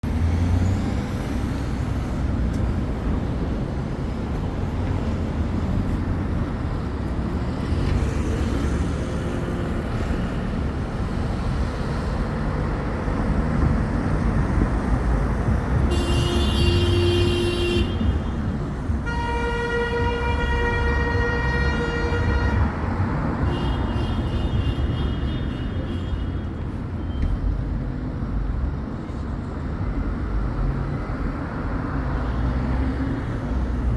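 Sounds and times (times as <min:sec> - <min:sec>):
road traffic rumble: 0:00.0 - 0:33.9
long horn-like tones: 0:19.0 - 0:22.8.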